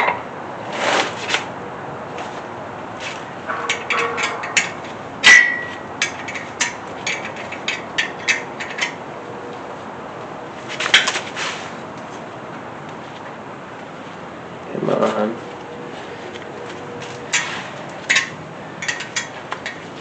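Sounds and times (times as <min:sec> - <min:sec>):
ringing metal clank: 0:03.5 - 0:07.2
metal tools clinking: 0:03.5 - 0:09.0, 0:17.3 - 0:19.8.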